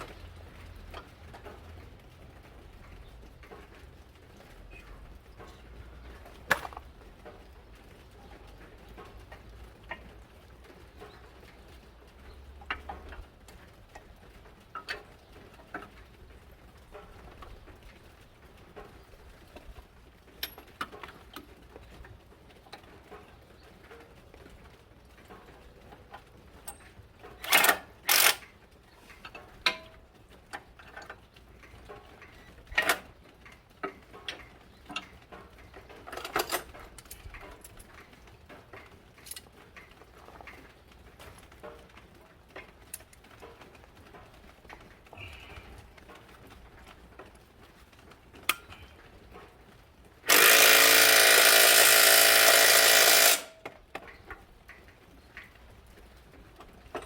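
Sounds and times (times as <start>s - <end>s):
clicks and knocks of hand tools: 5.3s - 7.5s, 25.3s - 46.3s, 48.4s - 49.5s, 50.2s - 55.6s.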